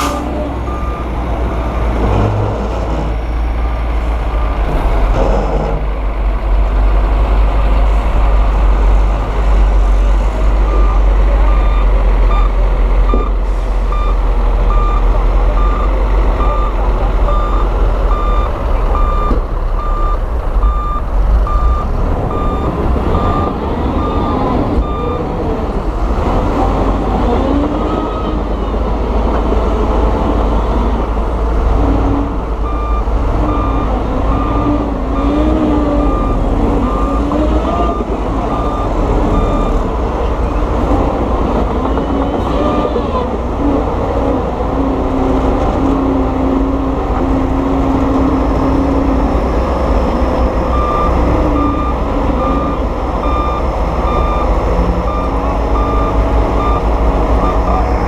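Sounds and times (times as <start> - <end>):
diesel machinery engine rumble: 0.0 - 58.0
reversing alarm beeping: 10.6 - 25.2, 32.6 - 39.8, 48.5 - 58.0.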